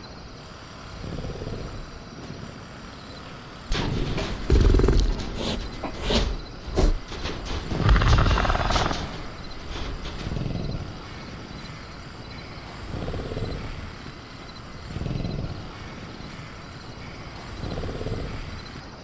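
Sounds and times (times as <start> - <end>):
faint crickets: 0.0 - 19.0
jungle ambience: 0.0 - 19.0
low rasping creature growls: 0.9 - 2.1, 3.7 - 11.5, 12.6 - 16.6, 17.2 - 18.8.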